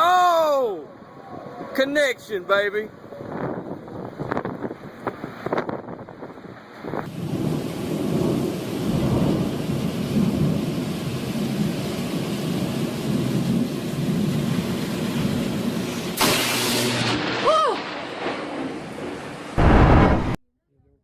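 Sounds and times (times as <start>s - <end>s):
steady hiss of heavy rain: 6.5s - 19.7s.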